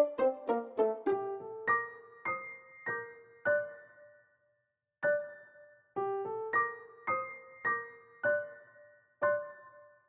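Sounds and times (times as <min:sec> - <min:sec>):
slow keyboard melody: 0:00.0 - 0:04.2.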